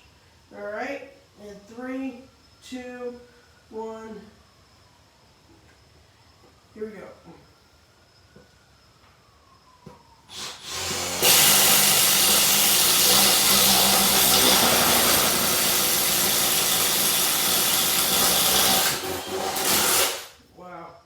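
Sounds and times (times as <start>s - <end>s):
impact driver hammering through wood: 10.3s - 20.4s.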